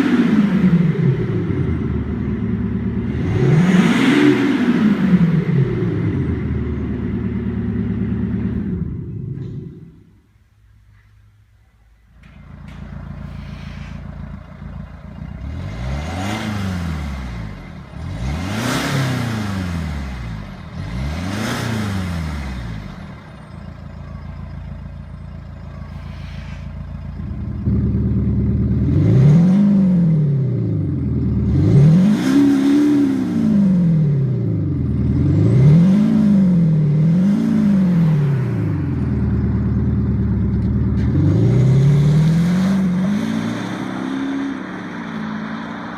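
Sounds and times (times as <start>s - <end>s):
diesel car engine revving: 0.0s - 10.2s, 12.4s - 45.9s
deep synthetic engine tone: 11.8s - 45.0s.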